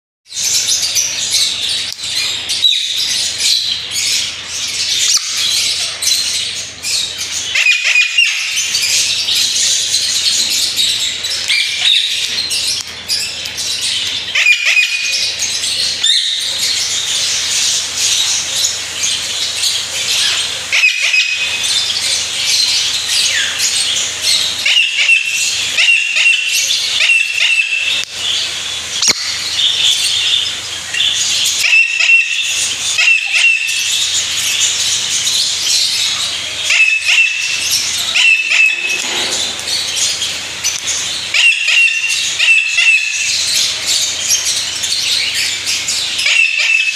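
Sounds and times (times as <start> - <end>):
parrot chirping and chattering: 0.3 - 46.9
parrot whistled notes: 38.2 - 39.0.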